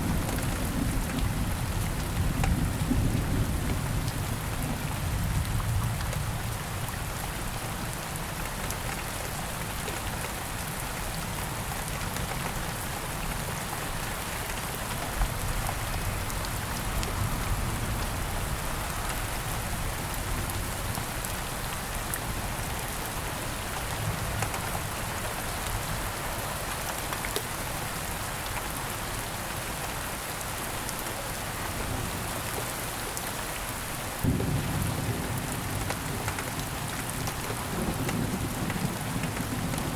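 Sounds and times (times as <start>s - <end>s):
steady rain falling: 0.0s - 39.9s
low thunder rumble: 34.2s - 36.3s.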